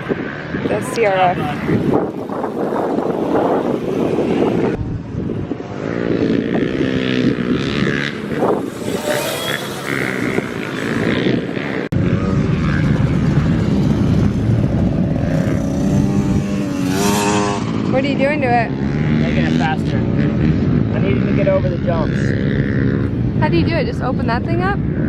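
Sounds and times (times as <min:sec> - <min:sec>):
dirt bike motor droning: 0:01.9 - 0:21.3.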